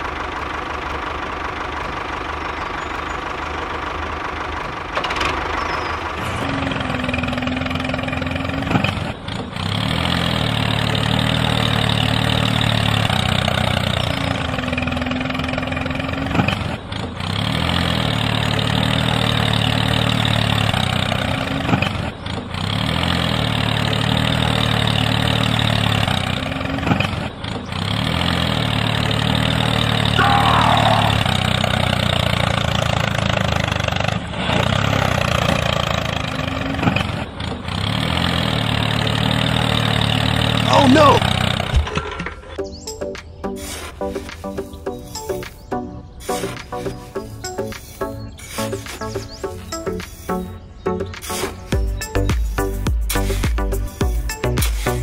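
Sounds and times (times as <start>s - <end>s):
tractor diesel engine idling: 0.0s - 42.8s.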